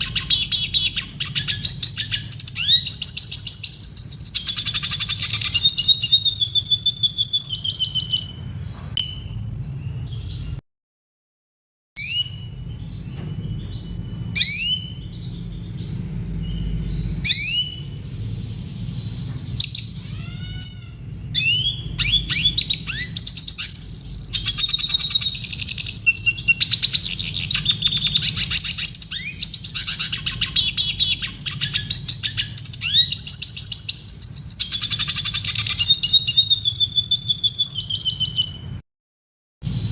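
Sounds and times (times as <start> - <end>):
bird twittering trills: 0.0 - 10.6, 12.0 - 38.8
rising bird chirps: 12.0 - 38.8.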